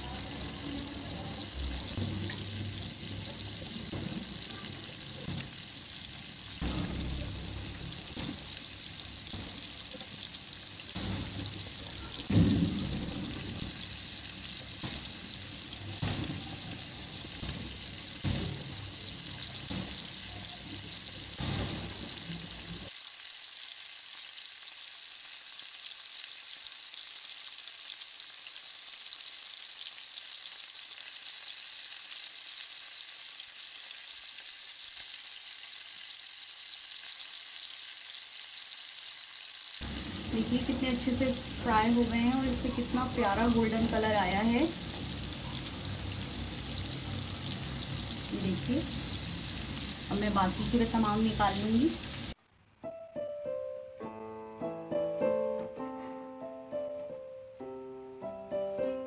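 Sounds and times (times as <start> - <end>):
chicken deep-frying in oil: 0.0 - 52.8.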